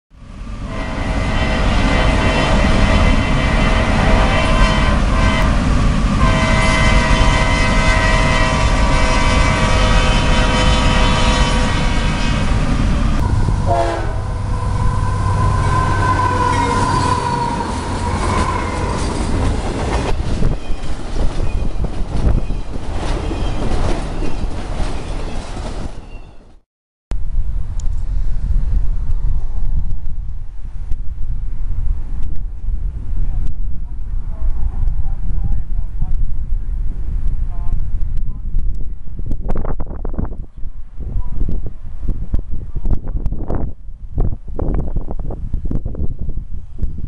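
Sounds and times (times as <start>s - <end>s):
freight train rumbling past: 0.2s - 26.6s
locomotive air horn blasts: 0.6s - 19.5s
wheels clacking over rail joints: 16.4s - 26.5s.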